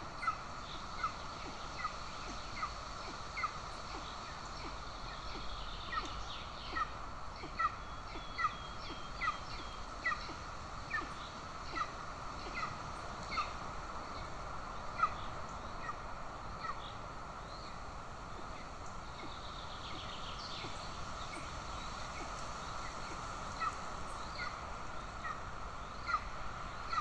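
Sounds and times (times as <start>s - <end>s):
steady background hiss: 0.0s - 27.0s.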